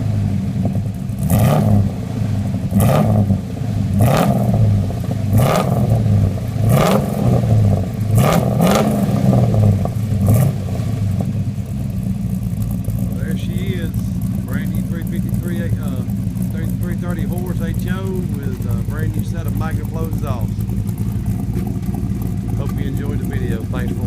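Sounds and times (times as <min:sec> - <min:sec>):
engine revving in blips: 0:00.0 - 0:11.4.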